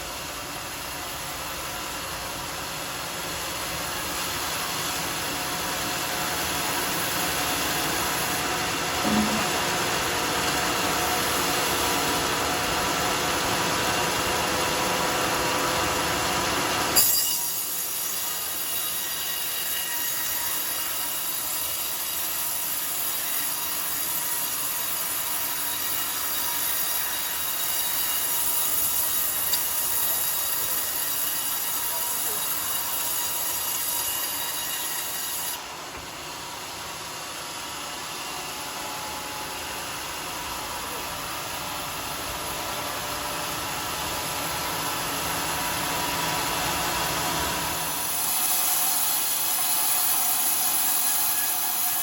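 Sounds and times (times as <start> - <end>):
circular saw cutting log: 16.4 - 38.6, 44.6 - 52.0.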